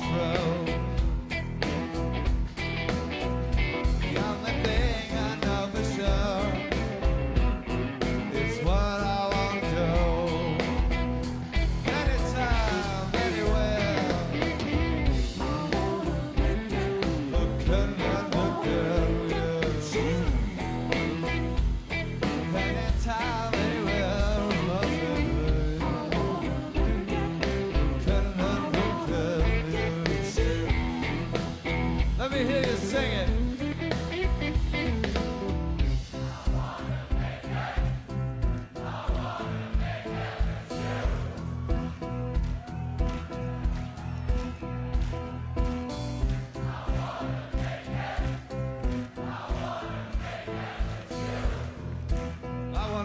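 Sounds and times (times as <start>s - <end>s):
person singing: 0.0s - 1.8s, 4.0s - 7.2s, 7.8s - 35.1s
live rock band playing: 0.0s - 53.0s.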